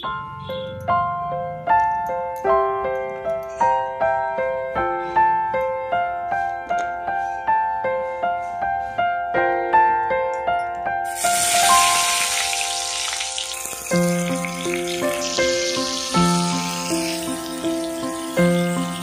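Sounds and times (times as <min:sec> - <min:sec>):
keyboard music: 0:00.0 - 0:03.2, 0:10.2 - 0:19.0
gourds sizzling in hot oil: 0:11.1 - 0:19.0.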